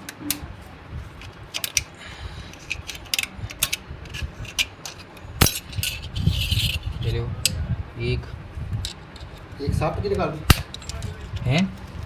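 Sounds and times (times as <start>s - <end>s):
metallic clicks and clinks: 10.6s - 11.5s.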